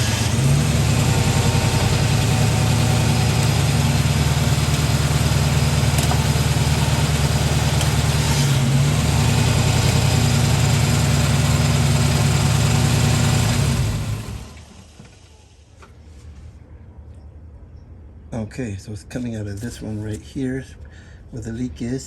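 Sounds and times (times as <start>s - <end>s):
car engine idling: 0.0s - 15.9s.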